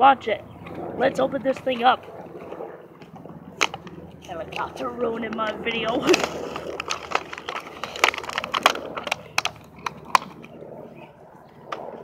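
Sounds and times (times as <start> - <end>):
plastic packaging tearing: 6.0 - 10.4.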